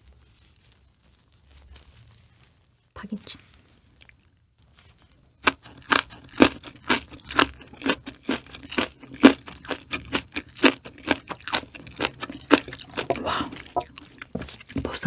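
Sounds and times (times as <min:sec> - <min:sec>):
chewing crunchy kimchi: 0:03.5 - 0:04.4, 0:05.0 - 0:15.0.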